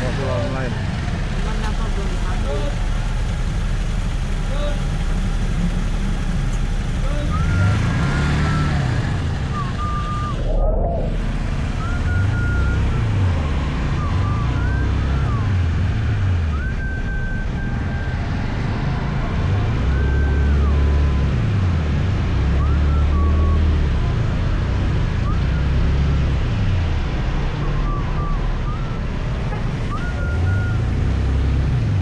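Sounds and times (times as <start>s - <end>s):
motor scooter engine revving: 0.0s - 14.9s
high engine whine: 0.0s - 32.0s.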